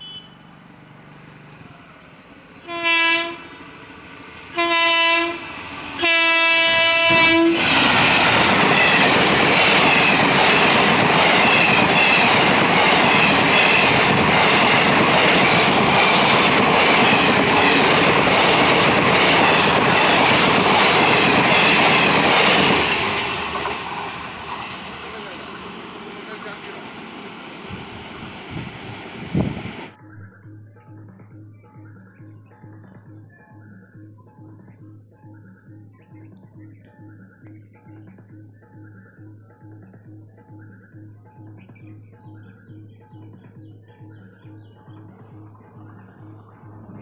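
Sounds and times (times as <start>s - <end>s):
train horn blasts: 0.0s - 0.4s, 2.6s - 3.6s, 4.5s - 7.8s.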